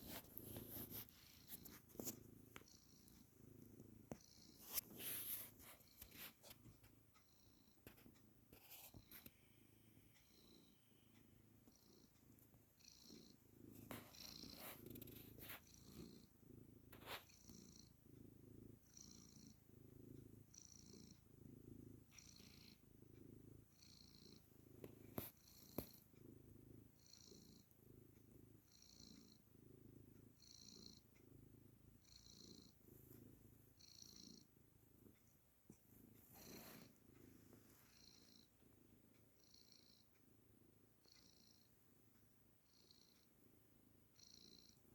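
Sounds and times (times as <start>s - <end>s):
faint clicks and rustles: 0.0s - 7.1s
cat purring softly: 0.0s - 44.9s.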